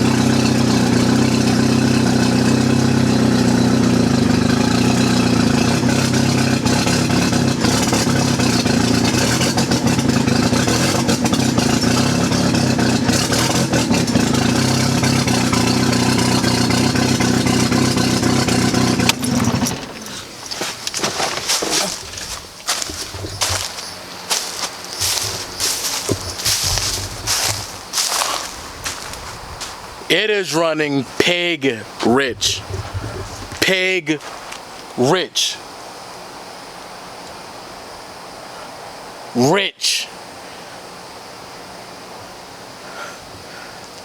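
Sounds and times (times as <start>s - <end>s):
car engine idling: 0.0s - 36.9s
person talking: 30.1s - 32.8s, 33.5s - 34.3s, 35.0s - 35.6s, 39.4s - 40.1s.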